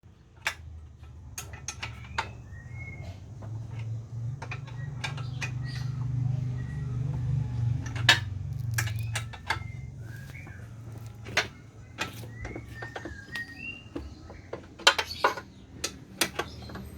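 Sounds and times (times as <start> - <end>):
bird chirps: 2.0 - 3.3, 8.6 - 16.9
metallic clinks and knocks: 7.7 - 13.4.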